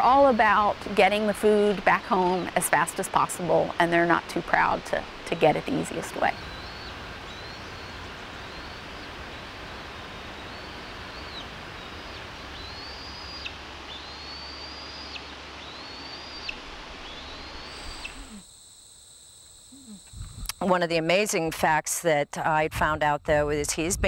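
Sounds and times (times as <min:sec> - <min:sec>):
outdoor background hiss: 0:00.0 - 0:24.0
bird calling high note: 0:05.8 - 0:18.5.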